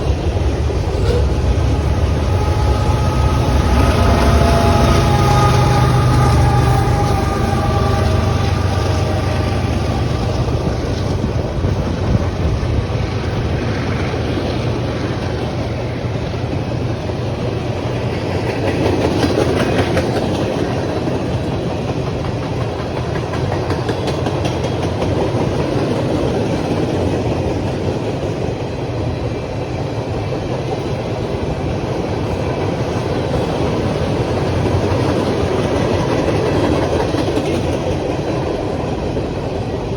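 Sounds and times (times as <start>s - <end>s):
locomotive engine drone: 0.0s - 18.4s
train cars rumbling past: 0.0s - 39.9s
wheels clacking over rail joints: 18.0s - 28.5s, 30.0s - 39.9s.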